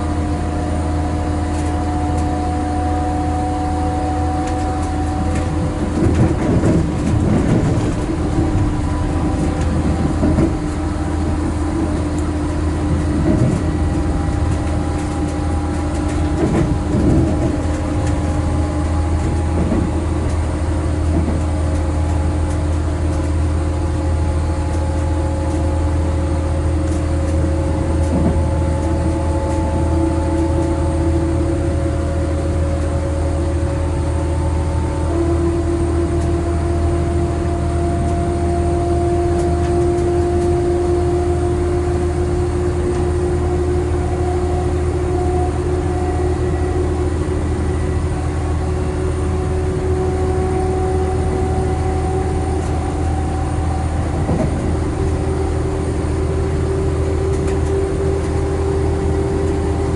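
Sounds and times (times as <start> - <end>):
rising train whine: 0.0 - 59.9
train interior rumble: 0.0 - 59.9
faint track knocks: 4.4 - 20.4, 26.9 - 29.7.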